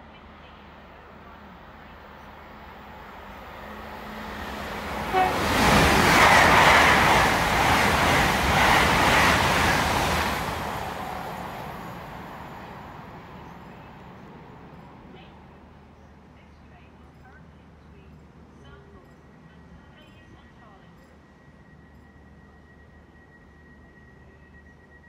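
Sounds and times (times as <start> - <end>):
train wheels rushing on rail: 0.6 - 15.7.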